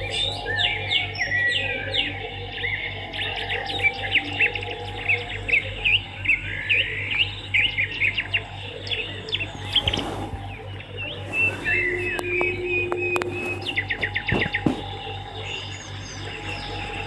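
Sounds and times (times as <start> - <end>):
low electrical hum: 0.0 - 17.0
rustle: 9.6 - 15.0.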